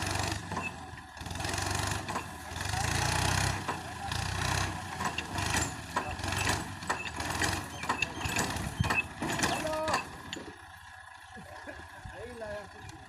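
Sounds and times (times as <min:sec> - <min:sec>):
tractor engine running: 0:00.0 - 0:13.0
clicks and rattles: 0:04.9 - 0:10.5.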